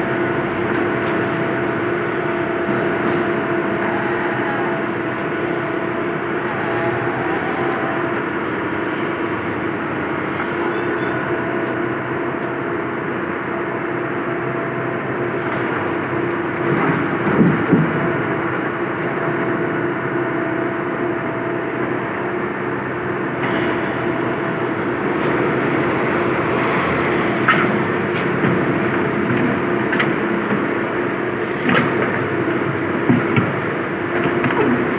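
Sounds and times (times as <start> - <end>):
excavator engine under load: 0.0 - 34.9
clatter of knocks: 27.4 - 30.9, 31.5 - 34.9.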